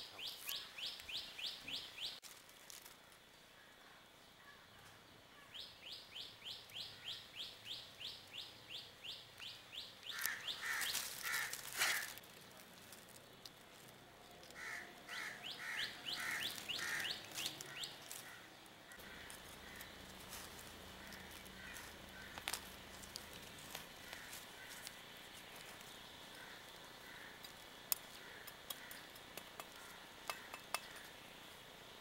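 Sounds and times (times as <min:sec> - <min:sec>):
harsh bird calls: 0:05.4 - 0:12.2, 0:14.5 - 0:22.8.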